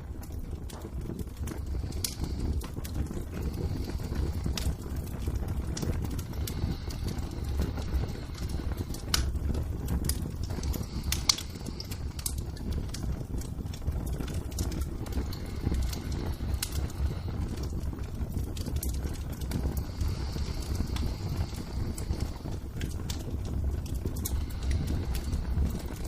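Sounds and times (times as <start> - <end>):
low rumble of burning fire: 0.0 - 26.0
sharp pops of fire: 0.0 - 26.0.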